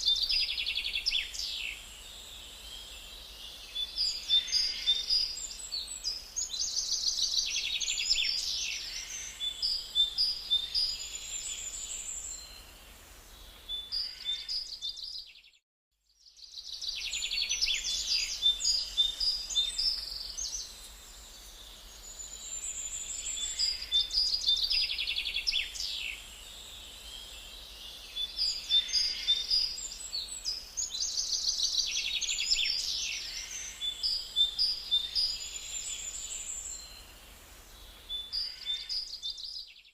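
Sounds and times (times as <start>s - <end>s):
birds chirping and singing: 27.0s - 37.1s, 37.8s - 39.9s.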